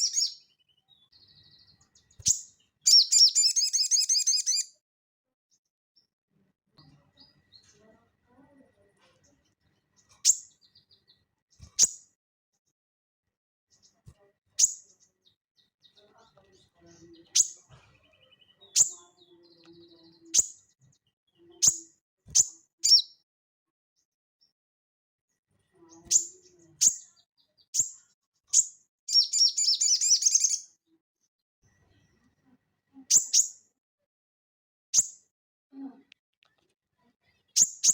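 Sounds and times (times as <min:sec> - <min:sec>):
songbird sharp high calls: 0:00.0 - 0:00.4, 0:02.2 - 0:04.7, 0:22.4 - 0:23.1, 0:27.8 - 0:30.6
bird singing high notes and warbling: 0:00.0 - 0:04.7, 0:17.1 - 0:23.2, 0:26.0 - 0:30.7, 0:33.1 - 0:33.7.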